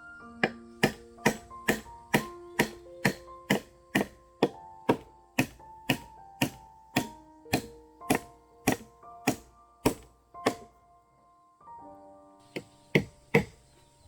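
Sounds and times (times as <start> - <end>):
soft keyboard music: 0.0 - 14.0
sharp knocks: 0.4 - 10.7, 12.5 - 13.6.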